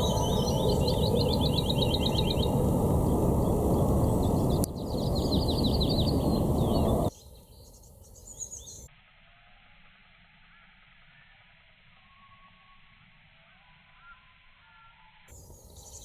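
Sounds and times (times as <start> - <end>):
loud steady rushing noise: 0.0 - 7.1
birds chirping: 0.0 - 8.9, 14.0 - 16.0.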